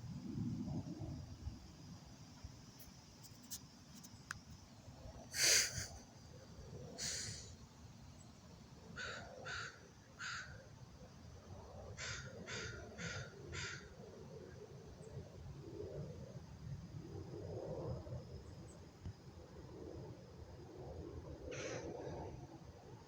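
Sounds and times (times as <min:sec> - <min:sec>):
bird giving harsh calls: 0:07.0 - 0:07.5.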